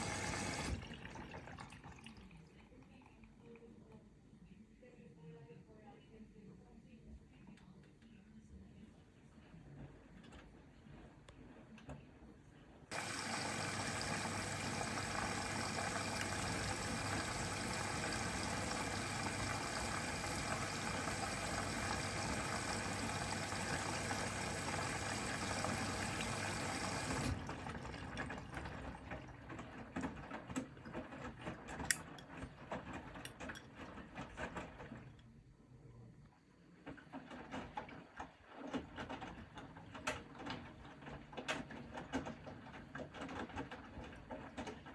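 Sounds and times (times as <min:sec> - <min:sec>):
water rushing into washing machine: 0:00.0 - 0:02.6, 0:12.9 - 0:35.2, 0:36.8 - 0:44.9
water trickling and gurgling: 0:00.0 - 0:02.7.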